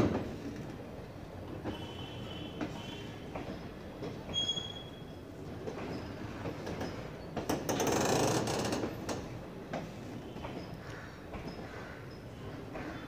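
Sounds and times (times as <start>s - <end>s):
high wheel squeals: 4.3s - 5.2s
train wheels clicking over rail joints: 5.6s - 13.0s.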